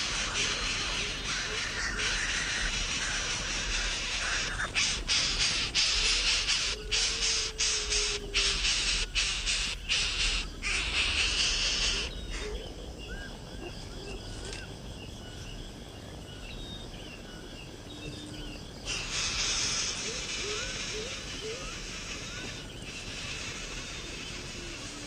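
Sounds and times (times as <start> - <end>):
nestlings begging calls: 0.0 - 12.6, 18.8 - 25.0.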